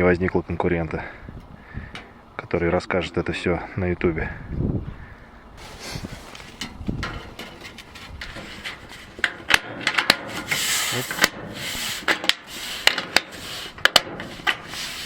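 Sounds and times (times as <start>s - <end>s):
sheet metal scraping: 5.6s - 15.0s
sheet metal clicks and knocks: 6.6s - 10.3s.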